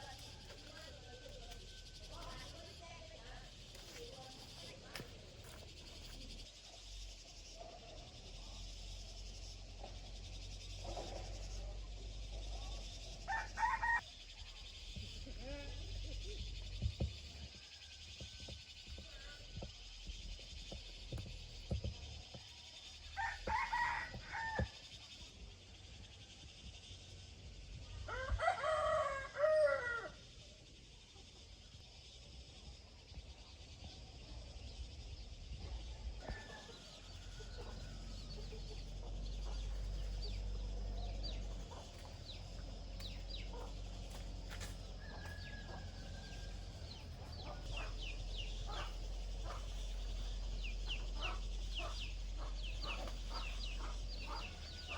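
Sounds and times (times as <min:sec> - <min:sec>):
rooster crowing: 0:13.3 - 0:14.0, 0:23.2 - 0:24.7, 0:28.1 - 0:30.2, 0:44.9 - 0:54.9.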